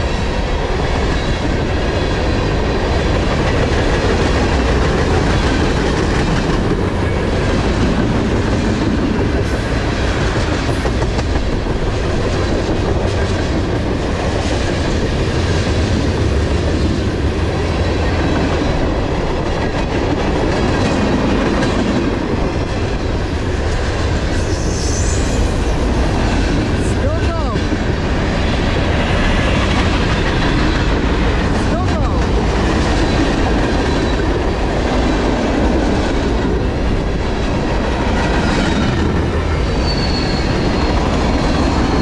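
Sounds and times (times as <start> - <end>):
freight train rumbling past: 0.0 - 42.0
wheels clacking over rail joints: 0.6 - 24.5.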